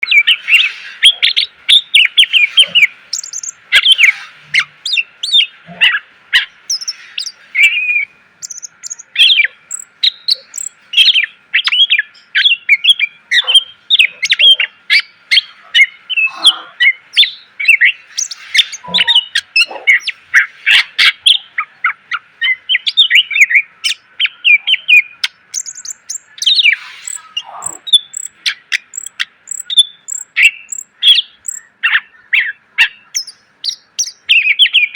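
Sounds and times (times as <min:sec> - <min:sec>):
songbird singing rapid song: 0:00.0 - 0:34.9.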